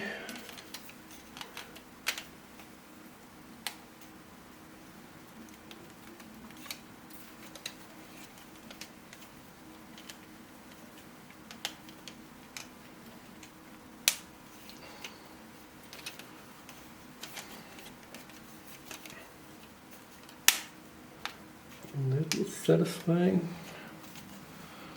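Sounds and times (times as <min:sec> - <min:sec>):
plastic puzzle pieces clicking: 0:05.4 - 0:09.3, 0:15.8 - 0:19.1.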